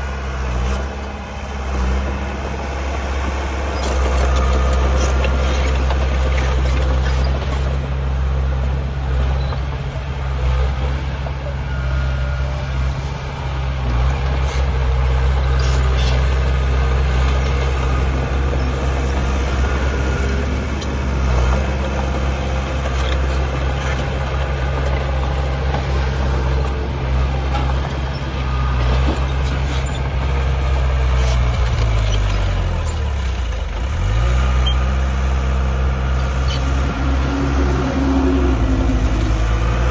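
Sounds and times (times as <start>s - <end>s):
diesel engine of heavy machinery: 0.0s - 39.9s.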